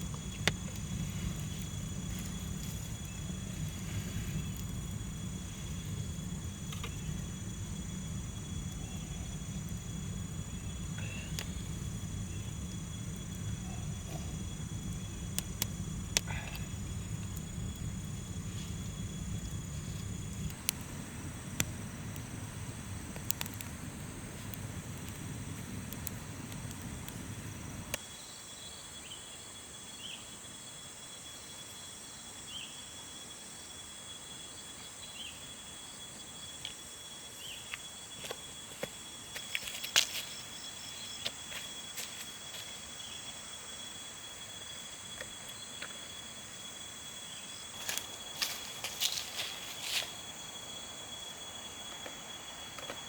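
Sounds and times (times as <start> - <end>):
low rumble: 0.0 - 28.0
insects droning: 0.0 - 53.0
sharp clicks and snaps: 23.1 - 23.7.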